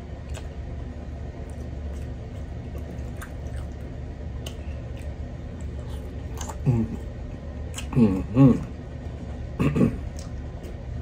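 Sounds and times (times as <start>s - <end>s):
steady low hum: 0.0s - 11.0s
chewing with wet mouth clicks: 0.2s - 0.6s, 1.4s - 6.7s, 7.7s - 8.0s, 10.1s - 10.8s.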